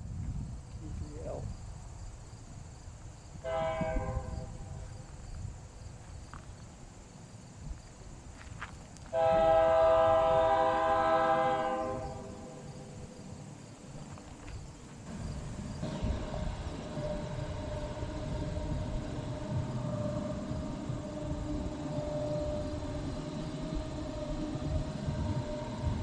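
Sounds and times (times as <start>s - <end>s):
locomotive air horn blasts: 3.4s - 4.8s, 9.1s - 12.7s, 15.8s - 26.0s.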